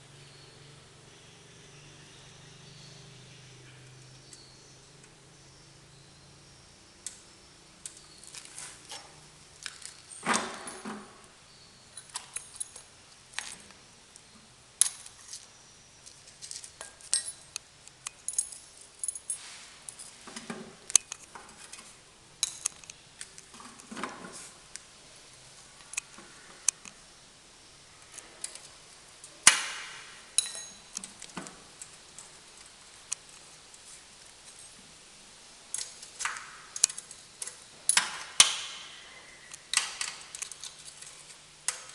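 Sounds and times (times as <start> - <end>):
metal tools clinking and knocking: 7.9 - 11.3, 11.9 - 13.7, 16.3 - 23.0, 30.4 - 32.7, 35.7 - 38.4.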